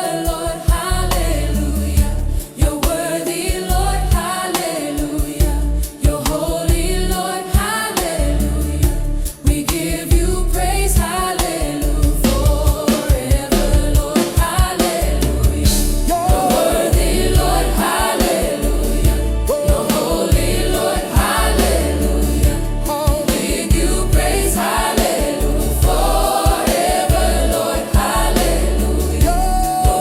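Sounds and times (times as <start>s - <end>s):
choir singing gospel: 0.0s - 30.0s
steady bass beat: 15.1s - 17.9s, 18.6s - 30.0s.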